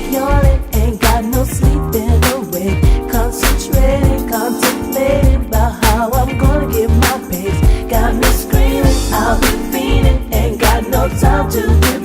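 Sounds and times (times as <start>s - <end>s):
hip-hop song with sung vocals: 0.0s - 12.0s
heavy bass: 0.3s - 4.3s, 5.0s - 11.9s
drum beat: 3.7s - 4.3s, 7.6s - 12.0s.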